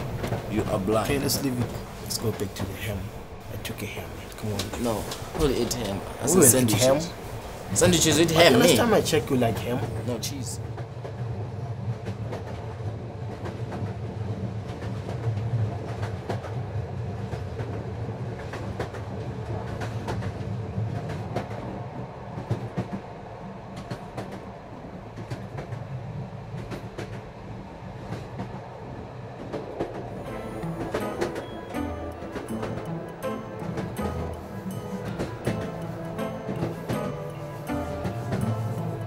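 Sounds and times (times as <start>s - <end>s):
wheels clicking on track: 0.0s - 8.4s
train rumbling: 0.0s - 39.0s.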